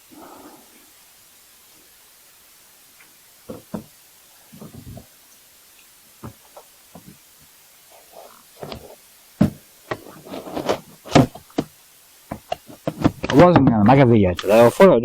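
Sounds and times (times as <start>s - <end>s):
gear knocks and clunks: 8.6s - 11.7s, 12.3s - 13.9s.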